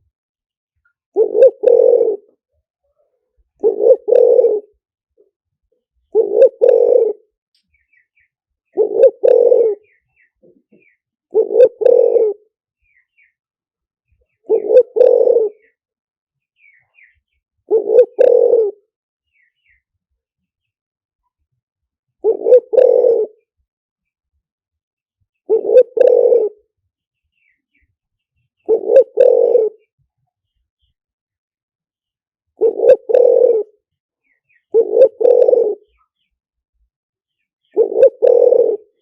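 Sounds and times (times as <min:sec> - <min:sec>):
dove cooing: 0:01.2 - 0:04.8, 0:06.1 - 0:07.4, 0:08.7 - 0:12.5, 0:14.3 - 0:15.8, 0:16.8 - 0:18.9, 0:22.2 - 0:23.5, 0:25.5 - 0:26.7, 0:28.6 - 0:29.9, 0:32.6 - 0:33.8, 0:34.5 - 0:36.1, 0:37.6 - 0:39.0
small birds chirping: 0:05.8 - 0:21.5, 0:25.2 - 0:31.1, 0:32.0 - 0:39.0.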